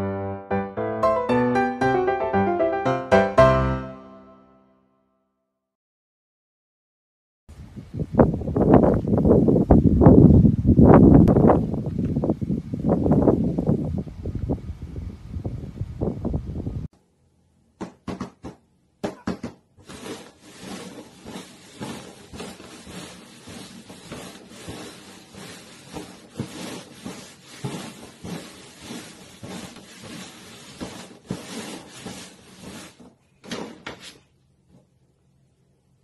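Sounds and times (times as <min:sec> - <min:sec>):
wind buffeting microphone: 0:07.5 - 0:16.9.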